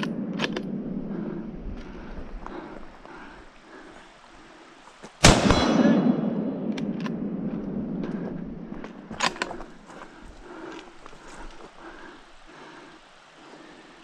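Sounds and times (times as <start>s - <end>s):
rifle shot echoing: 5.2s - 9.4s.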